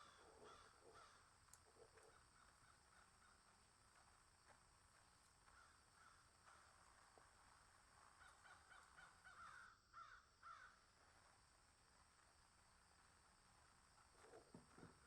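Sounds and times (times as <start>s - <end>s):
bird calls: 0.0s - 3.5s, 8.1s - 10.8s.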